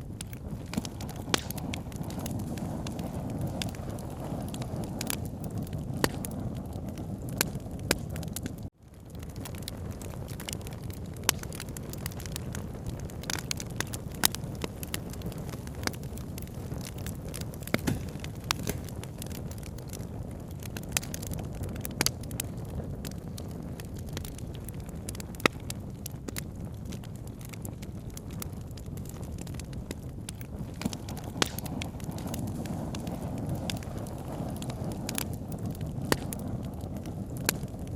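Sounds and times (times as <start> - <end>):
campfire crackling and popping: 0.0 - 37.9.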